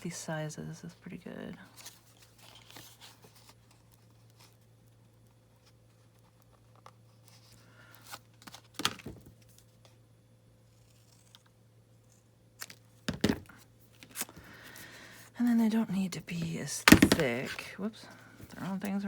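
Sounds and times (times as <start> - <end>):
faint electrical hum: 0.0 - 19.0
paper rustling: 1.7 - 4.7.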